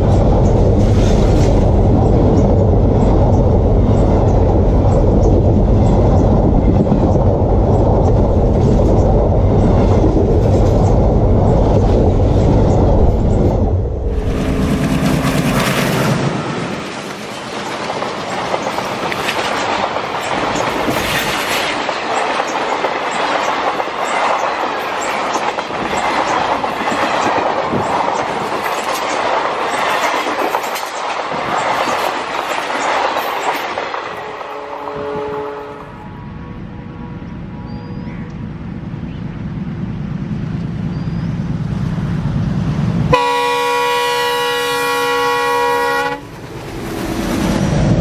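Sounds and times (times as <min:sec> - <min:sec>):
train wheels clattering over rail joints: 0:14.6 - 0:34.4.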